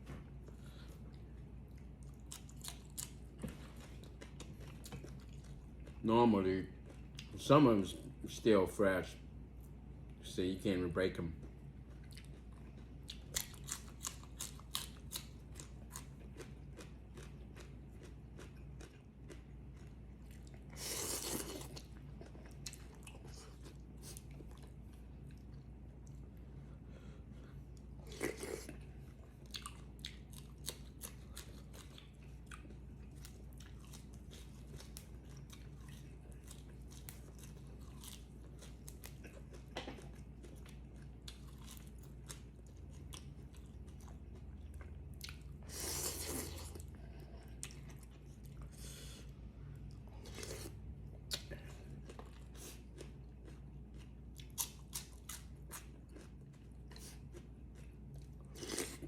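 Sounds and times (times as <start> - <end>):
person chewing and crunching food: 0.3 - 7.4, 11.2 - 59.0.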